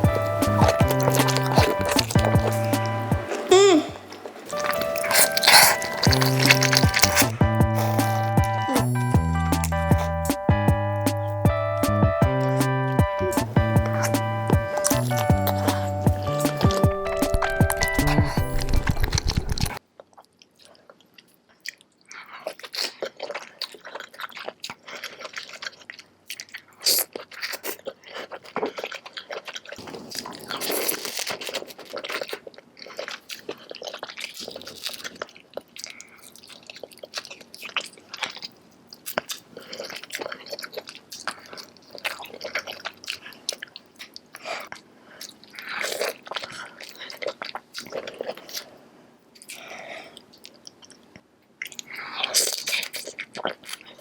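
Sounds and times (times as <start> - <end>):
crunchy bites: 0.0 - 3.6, 4.2 - 19.8
music: 0.0 - 3.7, 4.5 - 19.8
wet chewing and squishing: 0.0 - 54.0.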